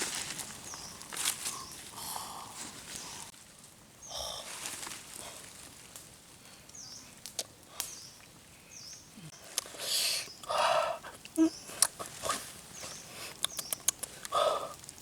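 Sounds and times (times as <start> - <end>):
sharp clicks: 13.4 - 14.4.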